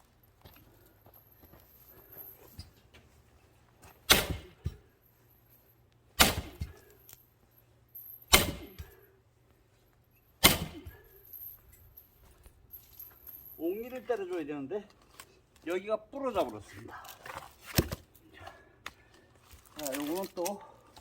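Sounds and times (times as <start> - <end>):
axe striking log: 4.1 - 4.7, 6.2 - 6.8, 8.3 - 8.9, 10.4 - 11.0, 17.7 - 18.0.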